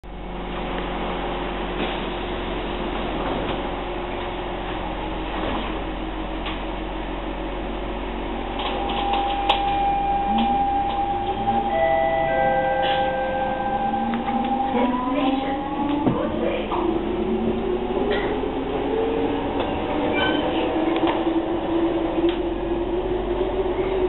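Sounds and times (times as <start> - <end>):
train car hum: 0.0 - 24.0
train doors sliding shut: 8.5 - 14.8
steady mid-pitched tone: 9.7 - 15.8.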